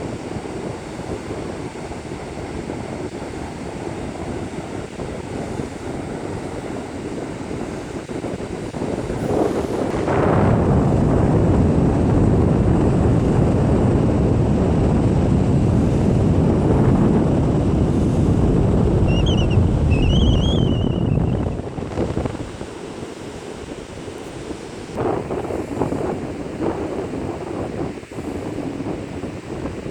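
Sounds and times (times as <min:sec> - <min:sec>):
wind buffeting microphone: 0:00.0 - 0:29.9
bird calls: 0:19.1 - 0:21.4.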